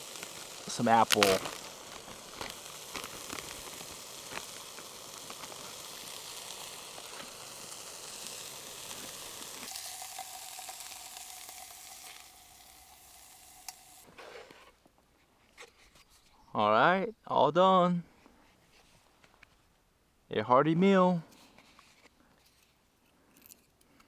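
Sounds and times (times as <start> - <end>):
fish sizzling in a pan: 0.0 - 14.2.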